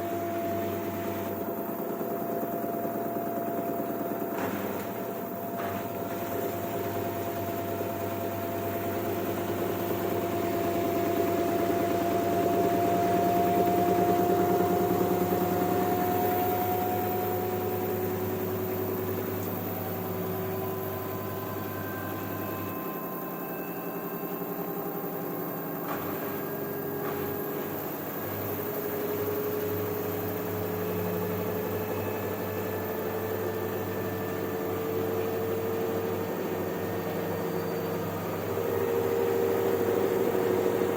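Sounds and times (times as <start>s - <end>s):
steady hum: 0.0s - 32.4s
washing machine motor whine: 0.0s - 40.9s.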